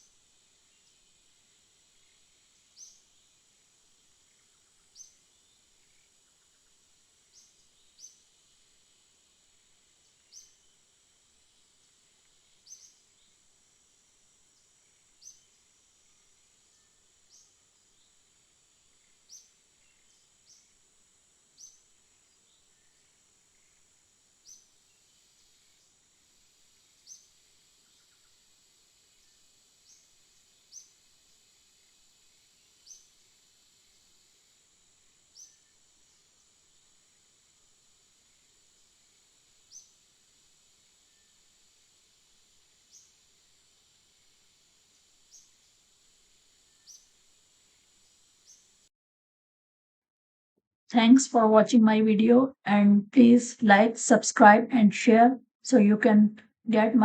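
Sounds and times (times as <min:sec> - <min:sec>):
steady high-pitched hiss: 0:00.0 - 0:48.9
small bird chirping: 0:12.6 - 0:13.4, 0:14.6 - 0:15.7, 0:19.0 - 0:20.8, 0:21.6 - 0:23.8, 0:24.4 - 0:26.0, 0:26.9 - 0:28.4, 0:29.2 - 0:31.0, 0:32.8 - 0:33.2, 0:35.3 - 0:35.7, 0:39.7 - 0:40.0, 0:46.7 - 0:47.2.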